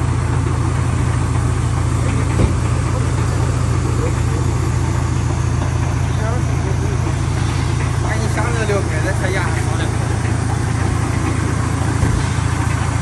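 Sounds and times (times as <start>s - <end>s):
tractor engine running: 0.0s - 13.0s
sharp knock: 2.4s - 2.6s.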